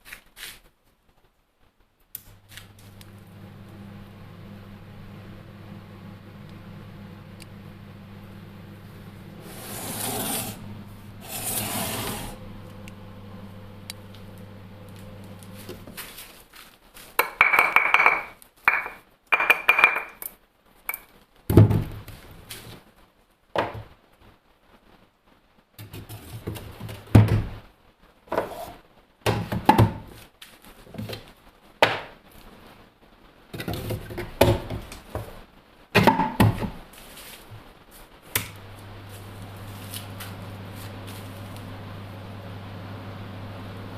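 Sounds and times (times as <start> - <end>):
steady low hum: 2.7 - 16.0, 38.5 - 43.9
hard objects knocking and clinking: 17.2 - 20.3.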